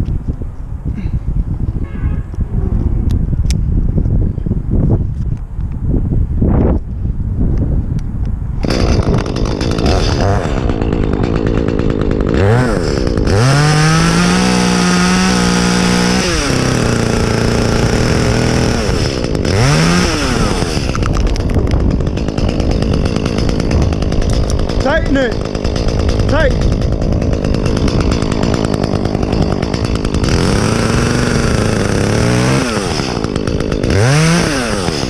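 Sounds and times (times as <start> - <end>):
chainsaw revving: 8.6 - 35.0.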